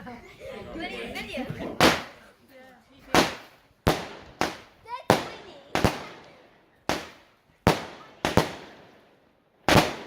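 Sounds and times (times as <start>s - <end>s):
fireworks exploding with echo: 1.8s - 2.2s, 3.1s - 10.0s.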